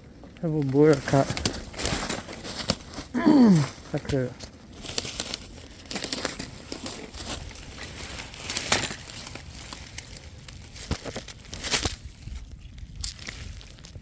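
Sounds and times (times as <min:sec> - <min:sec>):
crinkling and rustling: 0:00.6 - 0:03.1, 0:04.8 - 0:12.2.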